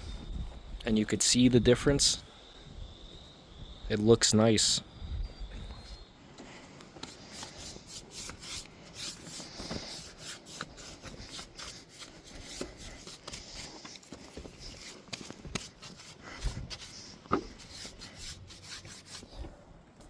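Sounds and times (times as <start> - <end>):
applicator scratching on wood: 7.0 - 19.4.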